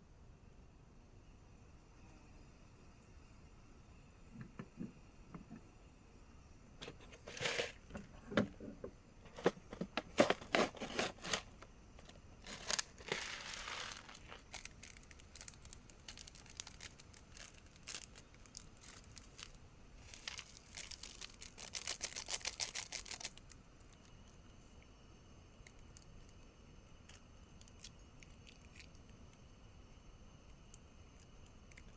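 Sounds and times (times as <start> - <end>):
plastic packaging crinkling: 6.8 - 7.8, 9.3 - 23.6.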